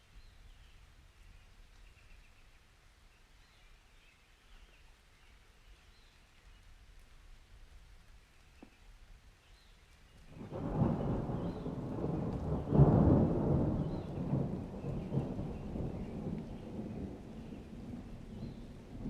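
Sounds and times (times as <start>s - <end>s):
thunder rumbling: 10.3s - 19.0s.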